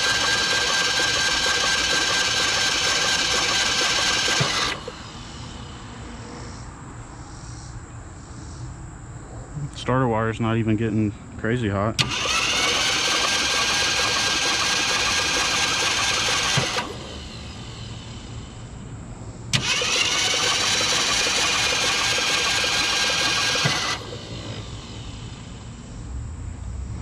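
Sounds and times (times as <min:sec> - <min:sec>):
starter motor cranking engine: 0:00.0 - 0:06.0, 0:12.0 - 0:18.8, 0:19.5 - 0:25.9.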